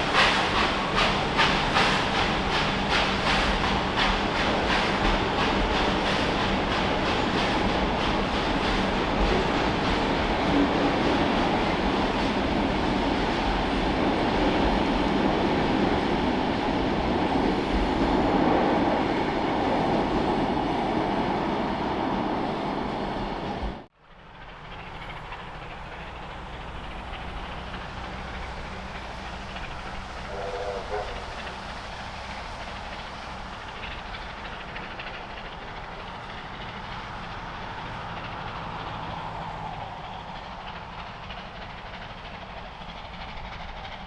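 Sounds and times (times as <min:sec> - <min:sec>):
train passing on rails: 0:00.0 - 0:44.0.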